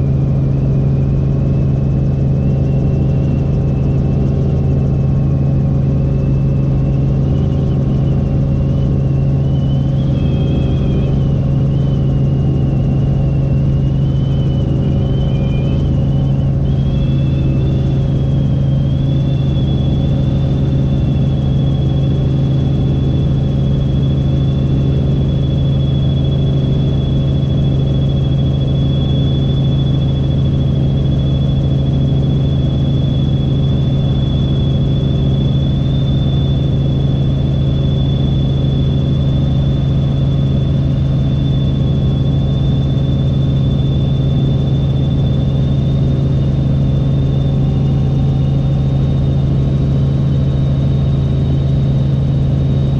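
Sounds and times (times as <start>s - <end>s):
helicopter rotor and engine drone: 0.0s - 52.9s
thin high whine: 0.0s - 52.9s.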